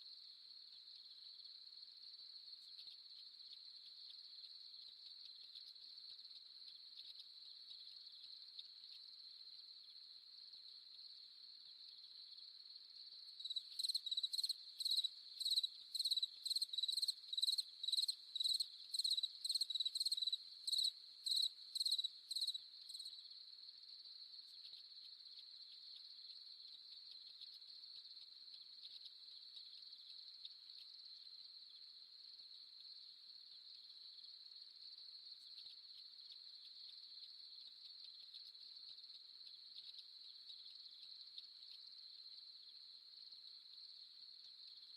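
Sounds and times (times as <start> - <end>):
crickets trilling: 13.3 - 23.3.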